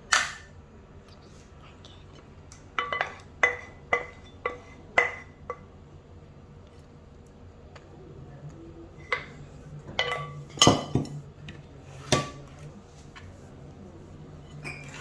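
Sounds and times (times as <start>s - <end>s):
steady low hum: 0.0s - 15.0s
pans and utensils clinking: 2.7s - 5.7s, 9.0s - 11.3s, 12.0s - 12.6s, 14.4s - 15.0s.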